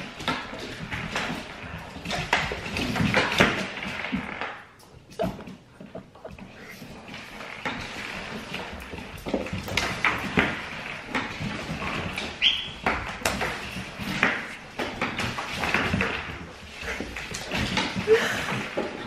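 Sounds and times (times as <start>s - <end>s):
puppy claws clicking on floor: 0.0s - 19.0s.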